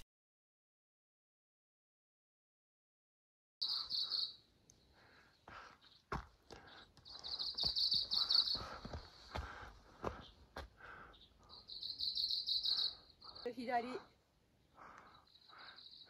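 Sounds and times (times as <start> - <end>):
small bird trilling: 3.6 - 4.4, 11.5 - 13.5
footsteps on stony trail: 5.0 - 11.6.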